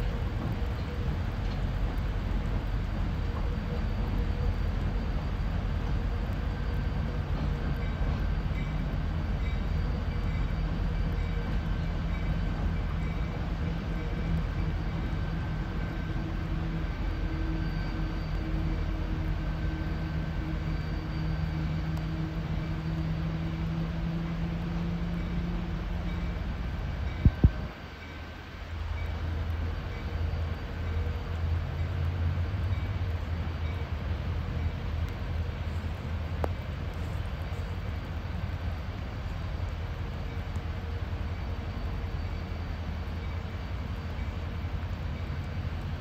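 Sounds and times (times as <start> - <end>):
diesel locomotive engine drone: 0.0 - 46.0
train rumble: 0.0 - 46.0.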